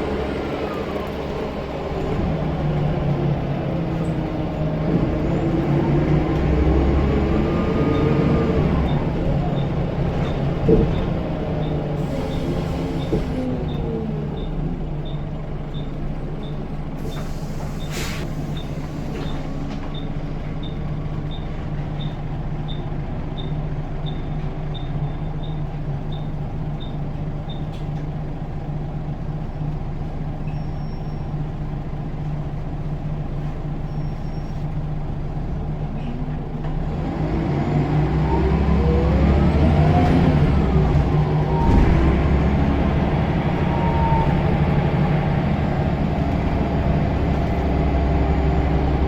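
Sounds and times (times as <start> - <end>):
bus diesel engine idling: 0.0 - 37.1, 37.8 - 49.0
air hiss: 17.0 - 19.2
engine revving: 36.8 - 49.0.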